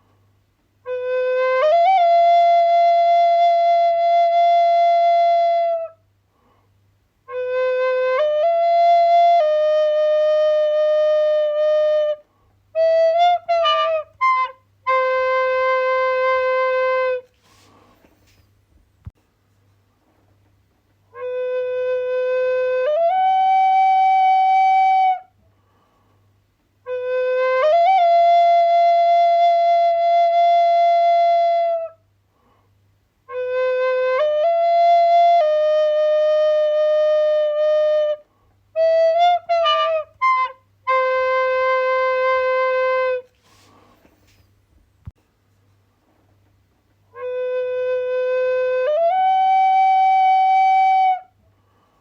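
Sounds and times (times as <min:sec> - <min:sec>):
solo flute playing: 0:00.8 - 0:06.0, 0:07.3 - 0:17.8, 0:21.1 - 0:25.4, 0:26.8 - 0:32.0, 0:33.3 - 0:43.8, 0:47.1 - 0:51.4.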